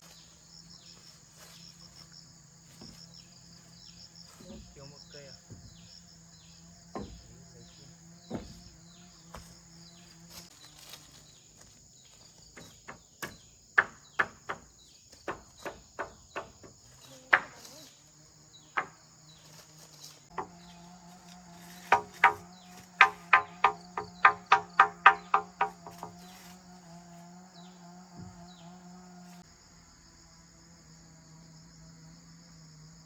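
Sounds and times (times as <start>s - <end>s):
insect chirring: 0.0s - 33.0s
sharp knocks: 5.4s - 5.9s, 6.9s - 7.5s, 8.2s - 8.8s, 12.5s - 17.7s, 18.7s - 19.0s, 20.3s - 20.6s, 21.8s - 26.2s.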